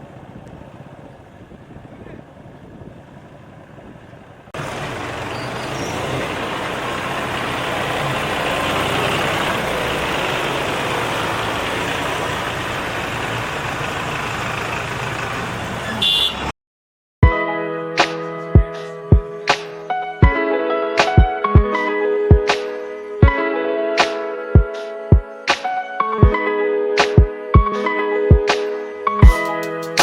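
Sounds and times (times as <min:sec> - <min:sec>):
tractor engine running: 0:00.0 - 0:16.3.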